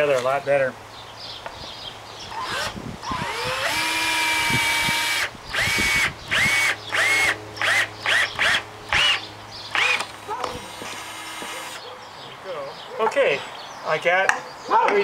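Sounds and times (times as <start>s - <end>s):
cordless drill driving screws: 2.3s - 11.8s.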